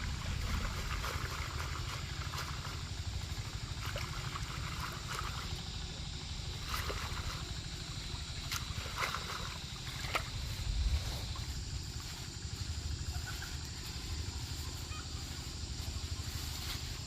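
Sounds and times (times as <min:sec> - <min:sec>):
low rumble: 0:00.0 - 0:17.0
fowl calling: 0:13.0 - 0:16.1.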